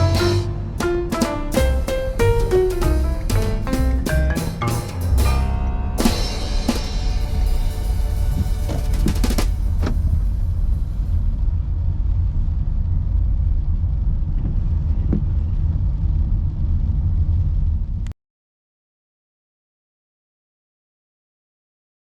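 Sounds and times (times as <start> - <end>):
closing music: 0.0 - 11.4
loud low rumble: 0.0 - 18.1.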